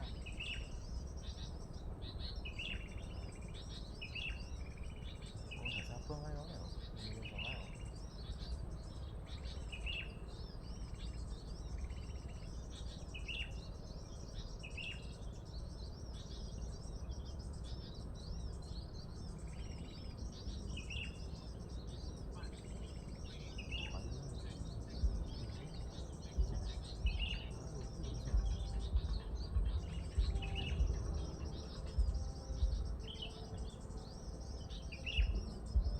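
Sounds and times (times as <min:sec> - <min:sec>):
small birds chirping: 0:00.0 - 0:35.9
low background rumble: 0:15.3 - 0:35.9.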